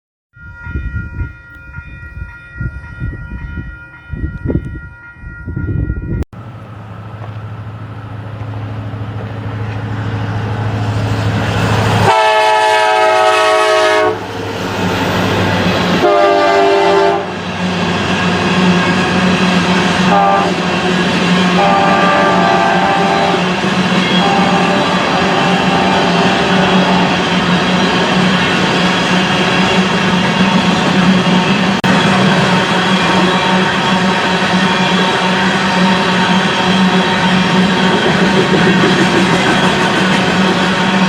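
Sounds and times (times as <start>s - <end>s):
diesel locomotive engine rumble: 0.4s - 41.0s
multi-chime air horn: 21.6s - 27.1s.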